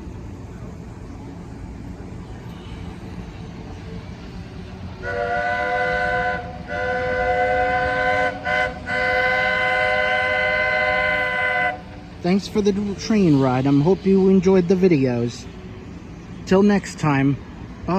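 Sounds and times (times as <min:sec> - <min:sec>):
low rumble of train: 0:00.0 - 0:17.9
steam locomotive chime whistle: 0:05.0 - 0:11.9.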